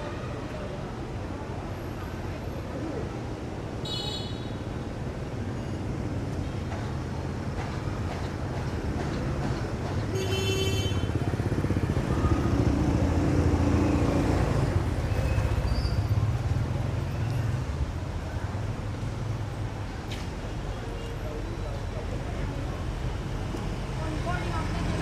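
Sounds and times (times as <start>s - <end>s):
motorbike engines passing: 8.4s - 25.0s.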